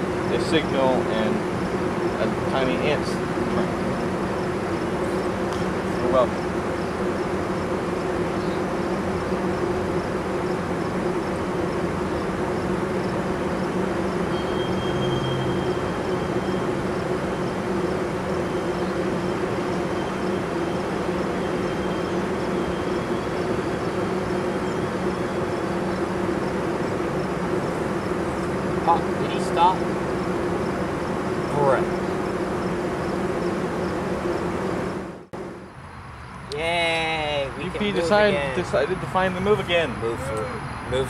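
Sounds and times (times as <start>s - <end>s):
track machines rumbling: 0.0s - 41.0s.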